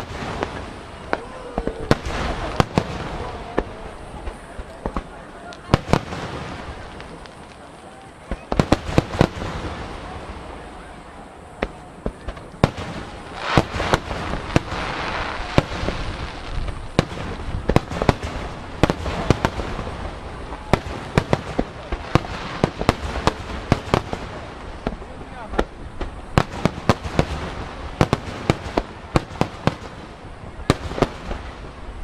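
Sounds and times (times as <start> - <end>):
firework shells bursting: 11.6 - 30.0.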